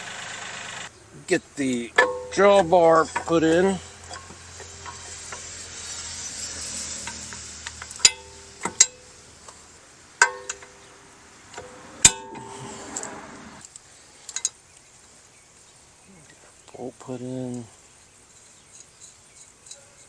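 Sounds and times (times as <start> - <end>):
metal scraping hiss: 0.0 - 14.6
sharp metal clanks: 1.8 - 13.1.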